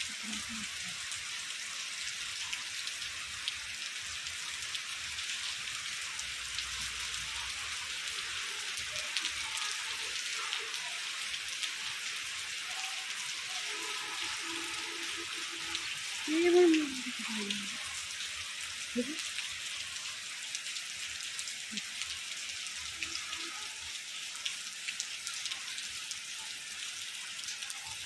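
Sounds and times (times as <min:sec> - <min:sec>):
heavy rain falling: 0:06.3 - 0:20.2.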